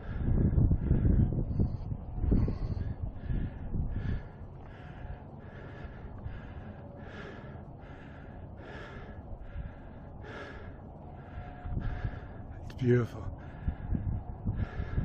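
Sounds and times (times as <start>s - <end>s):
man breathing hard: 0.0s - 15.0s.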